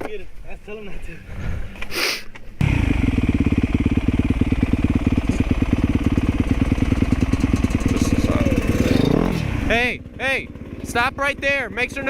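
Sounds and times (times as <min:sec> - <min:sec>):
motorcycle engine idling: 0:02.6 - 0:12.0.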